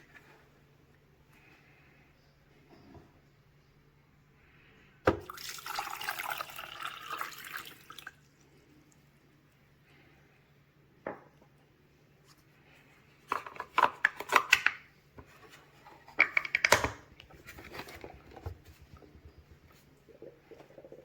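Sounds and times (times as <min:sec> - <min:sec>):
faint steady hum: 0:00.0 - 0:21.0
hard objects clicking and clattering: 0:13.3 - 0:19.6.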